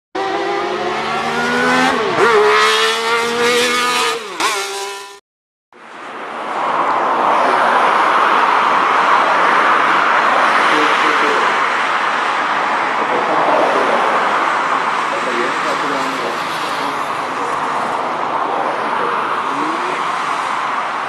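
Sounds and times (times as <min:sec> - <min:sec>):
car engine revving: 0:00.2 - 0:05.2, 0:13.0 - 0:21.0.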